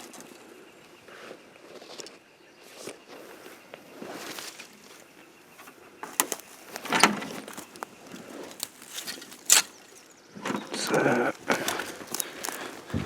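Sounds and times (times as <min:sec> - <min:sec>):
footsteps crunching through brush: 0:02.8 - 0:05.2, 0:06.0 - 0:10.0, 0:11.3 - 0:13.0.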